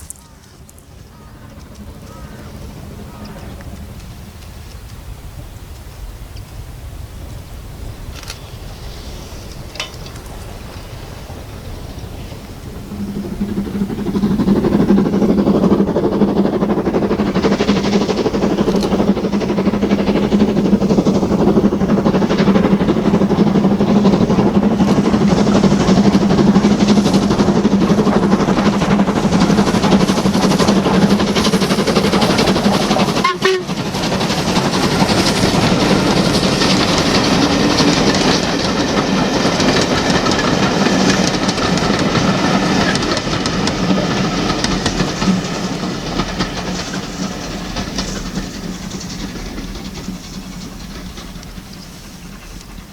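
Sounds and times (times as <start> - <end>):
train wheels clattering over rail joints: 0.0 - 52.9
steady low hum: 12.4 - 33.2.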